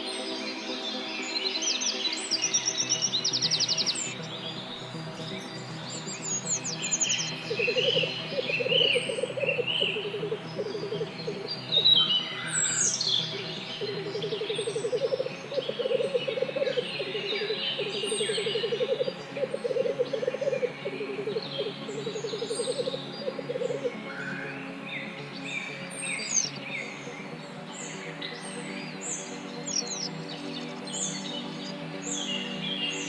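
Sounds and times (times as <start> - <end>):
low pulsed bird trill: 2.9 - 24.4
downward-sweeping bird whistles: 11.7 - 13.0.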